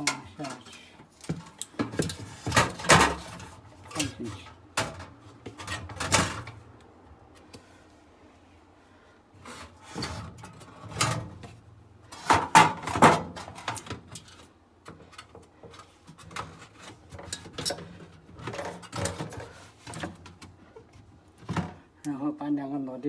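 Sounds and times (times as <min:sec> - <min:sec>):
plastic parts knocking and clattering: 0:00.0 - 0:04.1, 0:12.2 - 0:21.9.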